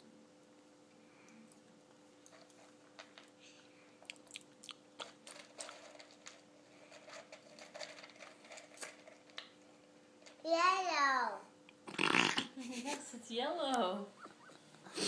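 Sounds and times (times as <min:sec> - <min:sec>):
faint steady hum: 0:00.0 - 0:15.0
child chewing crunchy cereal: 0:01.2 - 0:10.4
fingers rummaging in plastic cup: 0:05.0 - 0:09.5.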